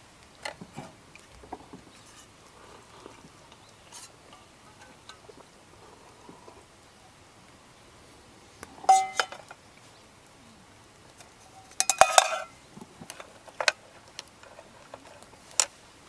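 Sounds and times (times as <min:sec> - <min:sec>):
metal cookware clinking: 0:08.9 - 0:09.4, 0:11.6 - 0:12.5.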